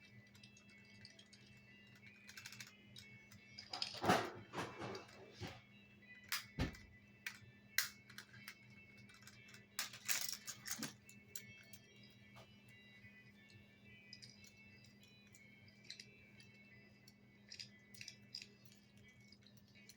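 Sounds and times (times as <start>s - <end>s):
toy vehicles clicking and clattering: 0.0s - 12.1s, 12.7s - 19.9s.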